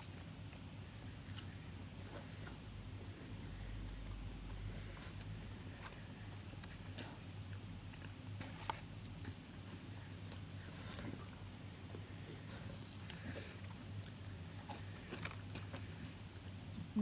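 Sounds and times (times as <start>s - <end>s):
low steady hum: 0.0s - 17.0s
person chewing food: 0.0s - 17.0s.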